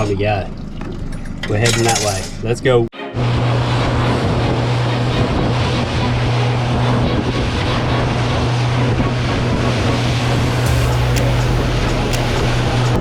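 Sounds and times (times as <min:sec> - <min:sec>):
motorboat engine hum: 0:03.1 - 0:13.0
water rushing: 0:09.6 - 0:13.0.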